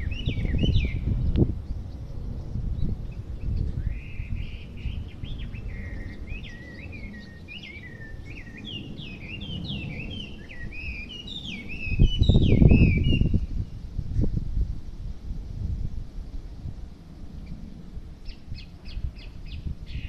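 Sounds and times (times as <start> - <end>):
songbird whistling song: 0.0 - 13.8, 18.2 - 20.0.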